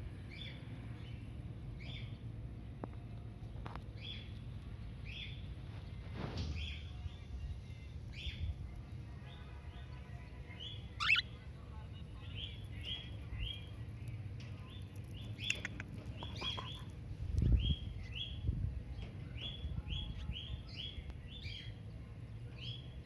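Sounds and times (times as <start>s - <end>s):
cockatiels chirping: 10.6s - 11.4s.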